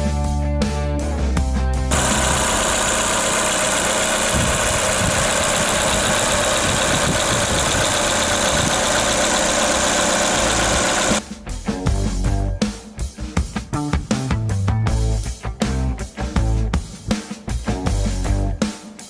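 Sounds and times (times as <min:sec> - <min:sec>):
car engine idling: 0:01.9 - 0:11.2.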